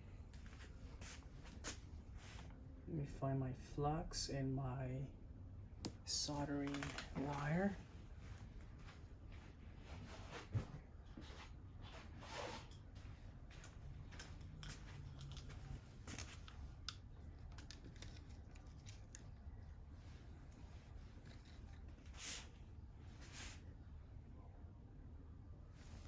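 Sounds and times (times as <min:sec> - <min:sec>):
tools clicking and rustling: 0:14.1 - 0:19.4.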